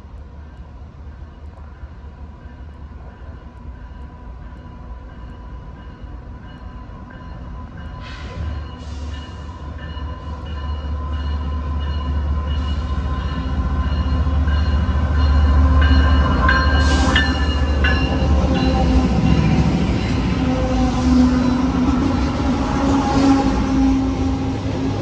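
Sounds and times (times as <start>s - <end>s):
diesel locomotive rumble: 5.0s - 25.0s
high-pitched train screeches: 7.8s - 24.7s.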